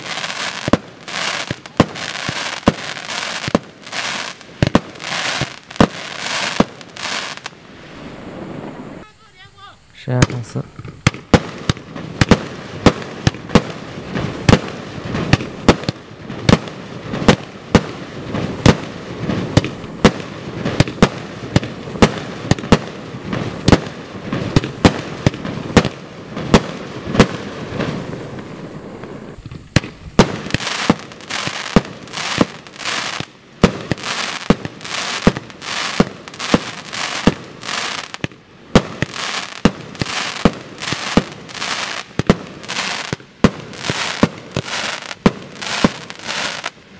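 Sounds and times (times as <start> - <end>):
firework crackle: 0.0 - 46.9
fireworks firing: 0.0 - 46.9.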